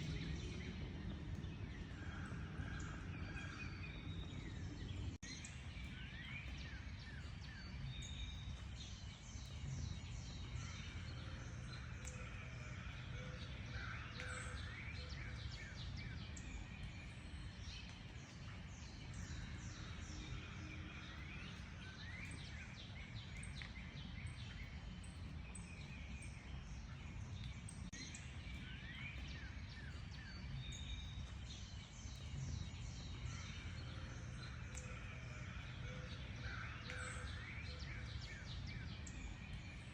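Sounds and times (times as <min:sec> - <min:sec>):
low rumble: 0:00.0 - 0:05.2
wild birds chirping and singing: 0:00.0 - 0:39.9.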